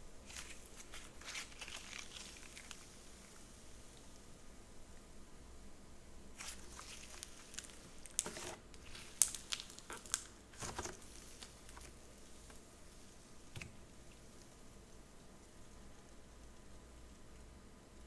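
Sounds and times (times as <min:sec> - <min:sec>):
slime crackling and popping: 0:00.3 - 0:04.2, 0:06.4 - 0:16.7.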